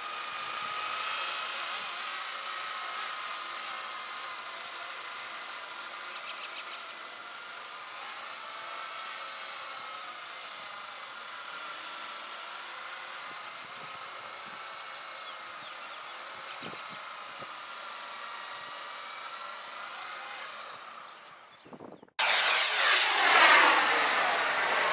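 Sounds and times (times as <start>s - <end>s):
rc helicopter motors whining: 0.0s - 24.9s
loud rushing noise: 22.2s - 24.9s.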